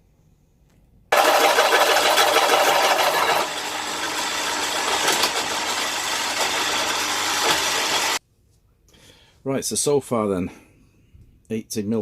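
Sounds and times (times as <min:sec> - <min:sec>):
drill motor running: 0:01.1 - 0:08.2
drill bit grinding through metal: 0:01.2 - 0:08.2.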